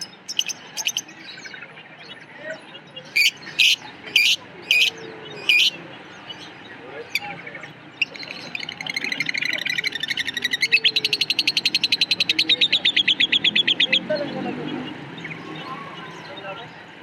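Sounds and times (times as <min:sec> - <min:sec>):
lovebird chirping: 0:00.0 - 0:01.3, 0:03.1 - 0:05.8.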